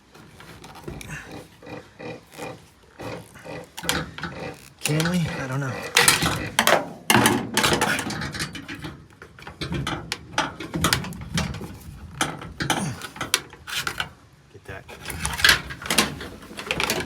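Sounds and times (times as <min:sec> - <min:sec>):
metal tools clinking: 0:03.2 - 0:10.0.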